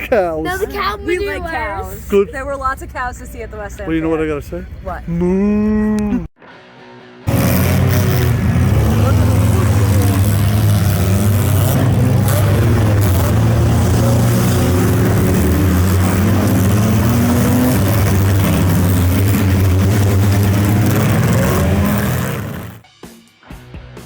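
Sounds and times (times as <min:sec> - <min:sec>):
car engines revving: 0:07.3 - 0:22.8
rushing noise: 0:07.3 - 0:22.8.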